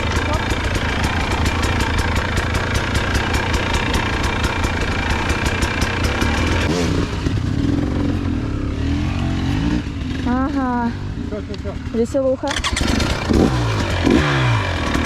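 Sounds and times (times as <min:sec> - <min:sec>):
rapid even ticking: 0:00.0 - 0:06.8
motorcycle engine running: 0:00.0 - 0:15.0.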